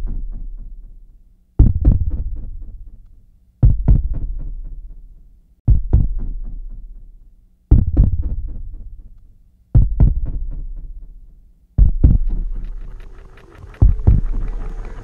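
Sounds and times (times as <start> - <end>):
heartbeat double thump: 1.6 - 2.5, 3.6 - 4.3, 5.7 - 6.4, 7.7 - 8.6, 9.8 - 10.5, 11.8 - 15.0.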